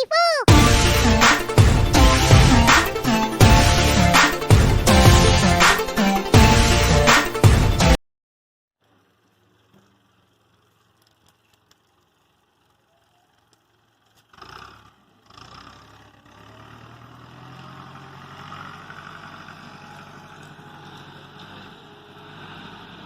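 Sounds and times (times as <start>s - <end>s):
engine humming: 13.8s - 23.0s.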